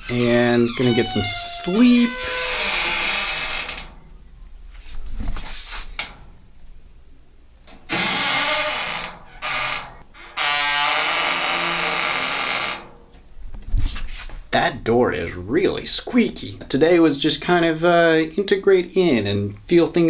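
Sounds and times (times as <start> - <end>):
squeaky door hinge creaking: 0.0 - 4.1, 7.9 - 13.0.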